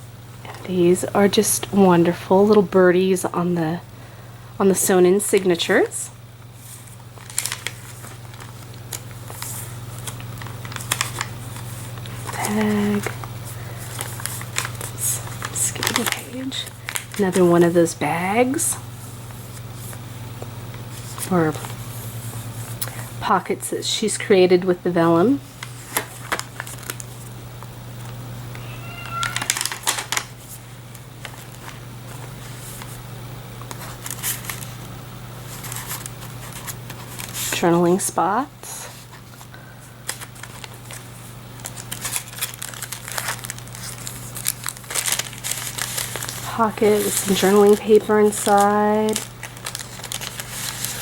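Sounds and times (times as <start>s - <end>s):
steady low hum: 0.0s - 51.0s
paper pages rustling: 6.6s - 17.7s, 20.9s - 22.8s, 25.6s - 27.3s, 28.6s - 33.0s, 33.6s - 34.9s, 35.5s - 37.6s, 38.7s - 51.0s
high squeak: 28.6s - 29.5s.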